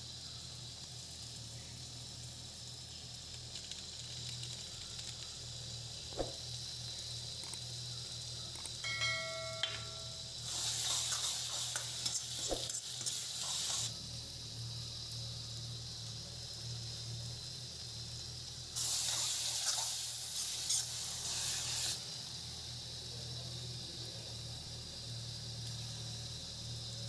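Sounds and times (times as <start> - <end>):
masala sizzling in a pan: 0.0 - 27.0
spatula scraping a pan: 10.5 - 13.9.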